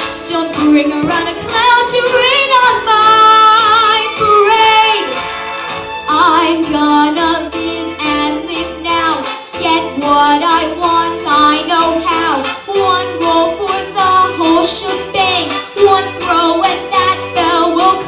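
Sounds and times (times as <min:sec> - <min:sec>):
musical accompaniment: 0:00.0 - 0:18.0
woman singing show tune: 0:00.2 - 0:05.2, 0:06.1 - 0:18.0.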